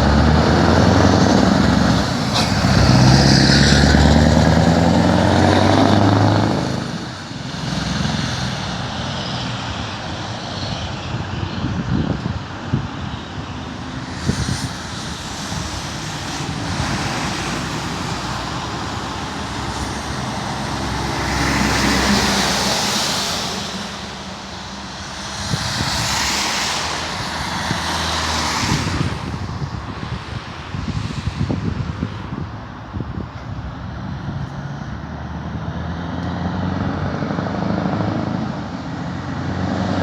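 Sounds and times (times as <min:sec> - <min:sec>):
truck diesel engine rumbling: 0:00.0 - 0:09.3.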